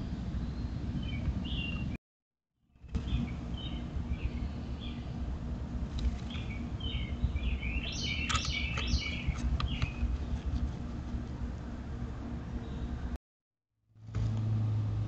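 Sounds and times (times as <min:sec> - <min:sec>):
faint hum: 0:02.8 - 0:13.2
high bird chirps: 0:06.3 - 0:10.1.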